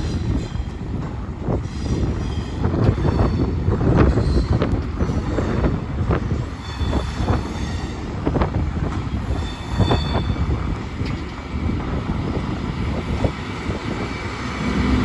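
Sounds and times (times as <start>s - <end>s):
locomotive low rumble: 0.0s - 15.0s
high wheel squeal: 6.4s - 8.1s, 9.1s - 11.2s.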